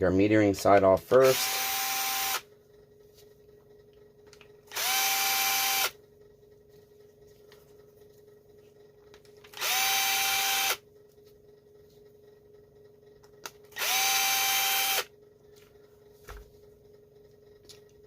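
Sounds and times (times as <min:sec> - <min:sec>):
electric drill whirring: 0:01.2 - 0:02.4, 0:04.7 - 0:06.0, 0:09.5 - 0:10.8, 0:13.7 - 0:15.1.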